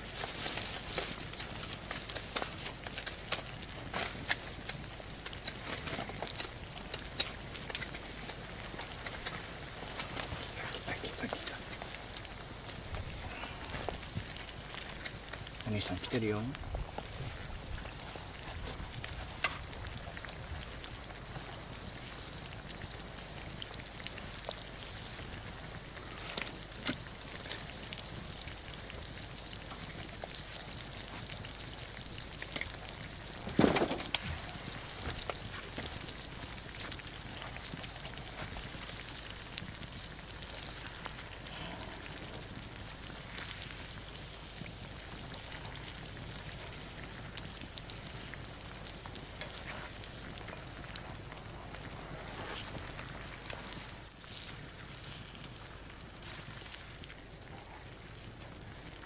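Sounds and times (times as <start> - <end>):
crackles and pops: 0.0 - 59.0.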